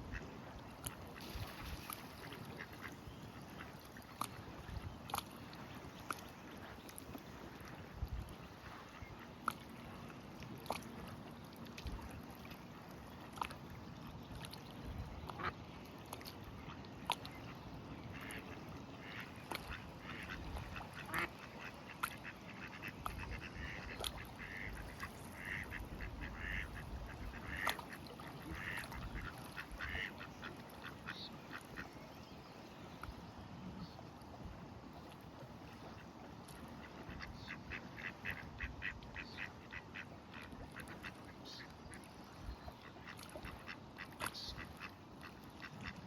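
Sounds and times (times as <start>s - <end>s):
ducks quacking: 18.1s - 31.9s, 36.8s - 41.7s.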